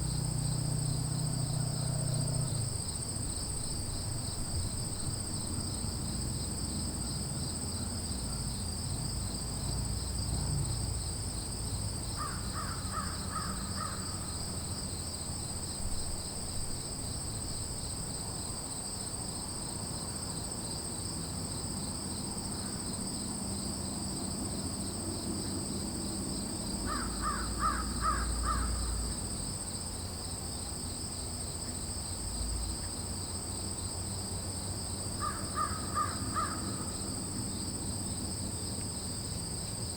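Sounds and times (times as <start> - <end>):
chorus of crickets: 0.0 - 39.9
crows cawing: 12.2 - 14.1, 26.9 - 28.9, 35.2 - 37.0.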